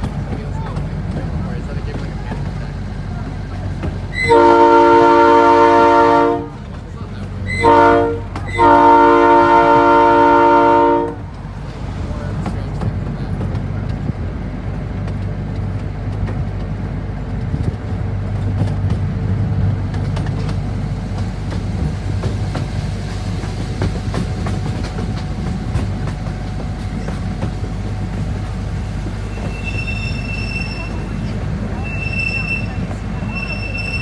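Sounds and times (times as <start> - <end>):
train wheels rumbling on rail: 0.0 - 34.0
clicks over rail joints: 11.1 - 29.6
faint thin wheel squeal: 29.2 - 34.0.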